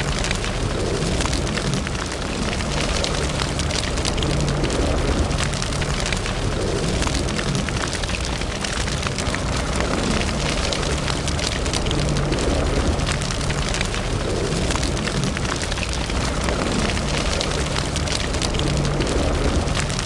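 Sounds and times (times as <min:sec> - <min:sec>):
fire crackling and popping: 0:00.0 - 0:20.0
flames rumbling: 0:00.0 - 0:20.0.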